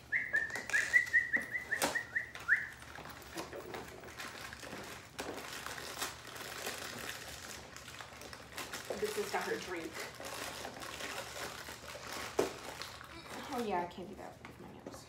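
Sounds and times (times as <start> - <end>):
bird chirping: 0.1 - 2.8
bag rustling: 0.4 - 13.9.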